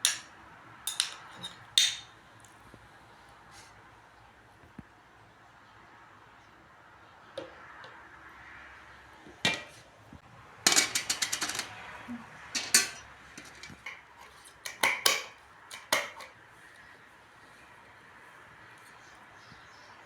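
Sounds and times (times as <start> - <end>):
kitchenware clinking and knocking: 0.0 - 0.3, 0.9 - 2.1, 9.5 - 9.8, 10.7 - 16.3.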